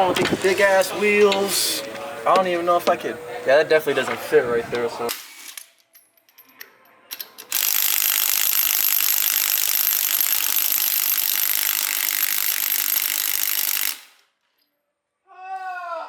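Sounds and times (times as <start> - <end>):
power tool running: 7.5 - 14.2.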